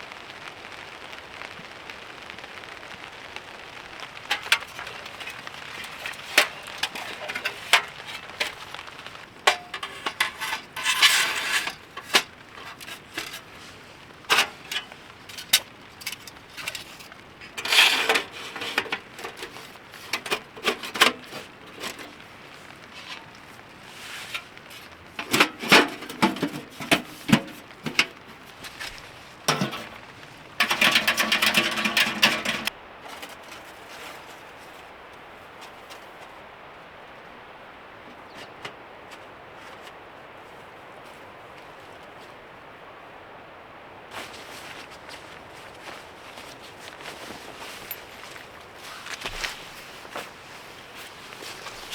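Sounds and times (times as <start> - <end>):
cookware and utensils clinking: 4.3 - 13.6, 14.2 - 22.3, 24.3 - 28.7, 29.4 - 33.4.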